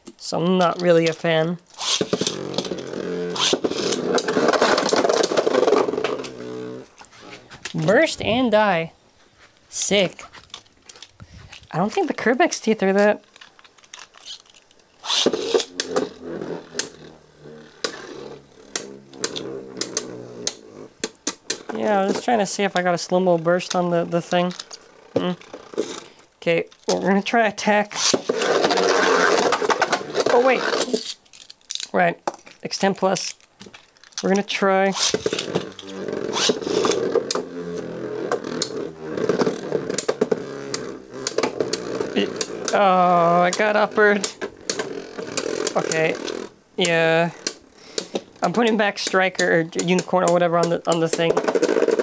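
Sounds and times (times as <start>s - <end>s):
spinning tops whirring: 1.7s - 6.8s, 15.0s - 22.8s, 34.9s - 47.4s
sudden rasp: 1.7s - 7.6s, 15.0s - 21.0s, 34.9s - 46.6s.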